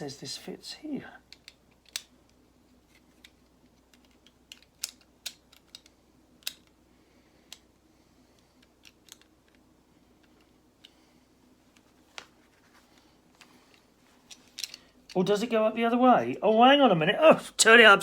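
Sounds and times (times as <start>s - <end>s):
plastic pieces clicking: 1.3s - 6.8s, 8.6s - 9.6s, 14.3s - 15.2s.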